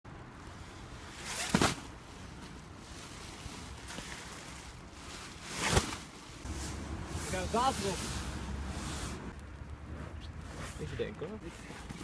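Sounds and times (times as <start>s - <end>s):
whoosh of rushing noise: 6.4s - 9.4s.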